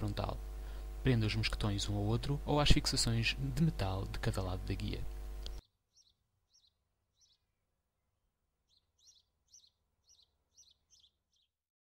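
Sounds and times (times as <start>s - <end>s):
faint songbird chirps: 5.4s - 7.7s, 8.6s - 11.6s.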